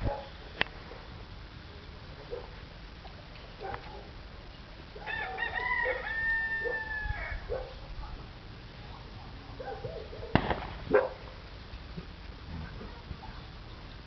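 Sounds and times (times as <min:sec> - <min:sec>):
rooster crowing: 0:05.0 - 0:07.6.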